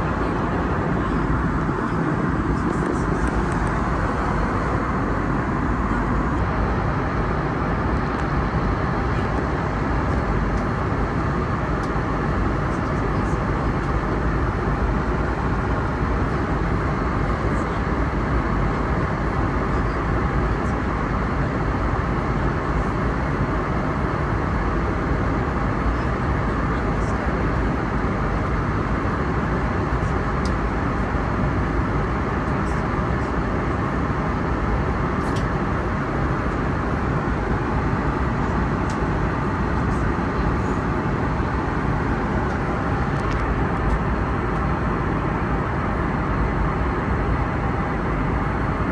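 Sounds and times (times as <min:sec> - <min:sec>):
airliner cabin airflow and engine: 0:00.0 - 0:48.9.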